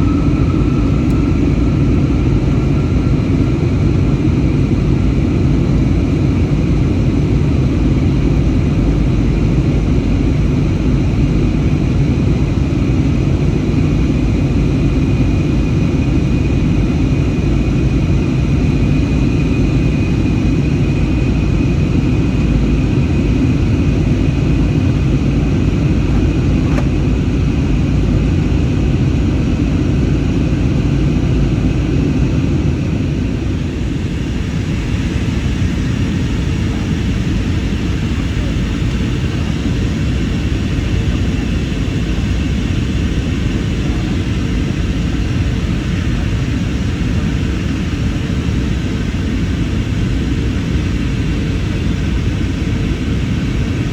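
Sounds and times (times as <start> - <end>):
thin high whine: 0.0 - 4.7
airplane cabin engine rumble: 0.0 - 53.9.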